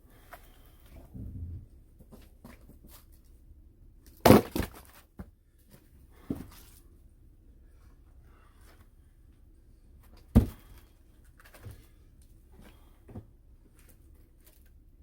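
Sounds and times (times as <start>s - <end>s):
firewood knocks and cracks: 4.2s - 5.3s, 10.3s - 10.8s.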